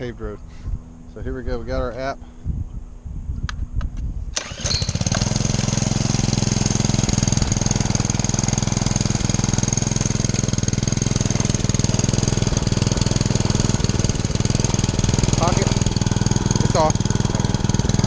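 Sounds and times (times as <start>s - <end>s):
small engine starting and idling: 4.3s - 18.0s.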